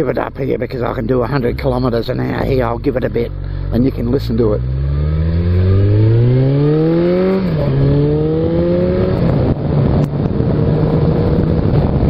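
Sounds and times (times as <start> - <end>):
motorcycle accelerating hard: 4.0 - 12.0.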